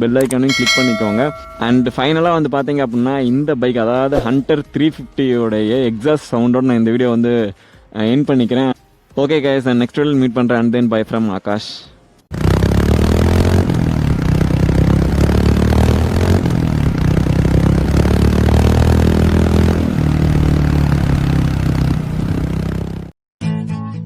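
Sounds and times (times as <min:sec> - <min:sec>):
motorcycle engine revving: 0:12.3 - 0:23.1.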